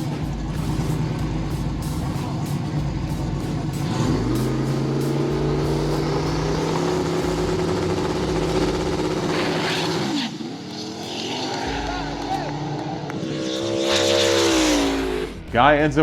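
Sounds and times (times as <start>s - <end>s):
drag car engine at full throttle: 0.0s - 15.5s.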